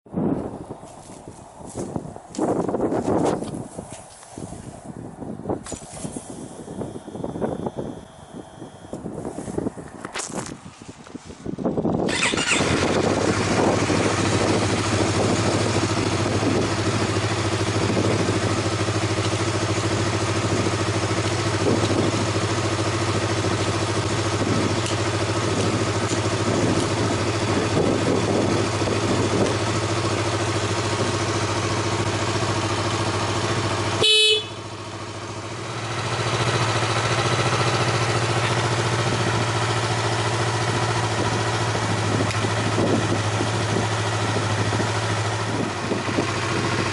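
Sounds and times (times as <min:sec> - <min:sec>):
motorcycle engine idling: 0:06.0 - 0:09.2, 0:12.0 - 0:46.9
short horn beep: 0:34.0 - 0:34.7.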